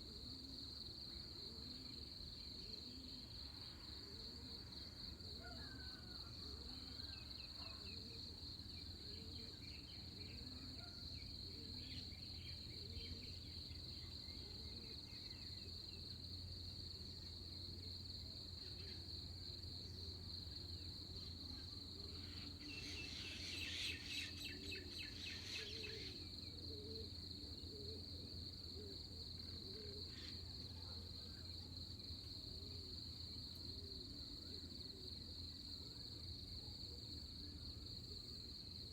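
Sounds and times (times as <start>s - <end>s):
cricket trill: 0.2s - 38.9s
faint bird chirps: 22.2s - 27.1s.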